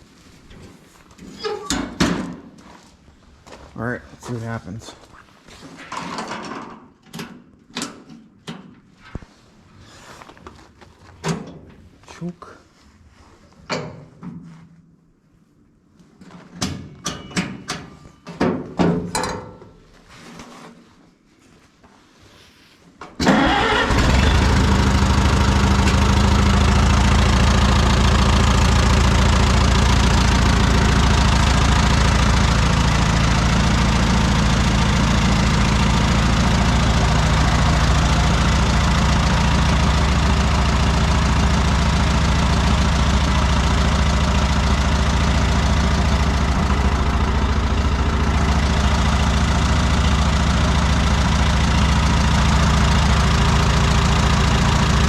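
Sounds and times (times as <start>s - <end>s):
tractor engine starting and idling: 23.2s - 55.0s.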